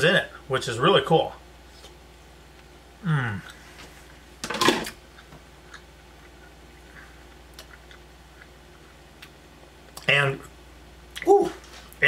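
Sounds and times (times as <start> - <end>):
man chewing: 5.0 - 10.1.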